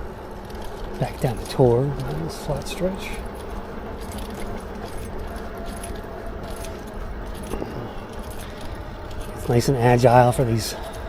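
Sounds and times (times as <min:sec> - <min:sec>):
tyre and wind noise: 0:00.0 - 0:11.0
metallic rattle of bike parts: 0:00.4 - 0:11.0.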